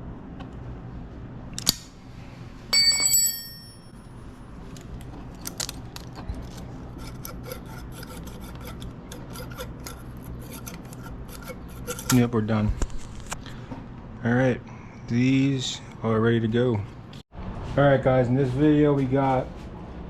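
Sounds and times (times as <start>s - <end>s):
metal tool clinking and ringing: 2.7s - 4.1s
tool scraping: 5.1s - 13.4s.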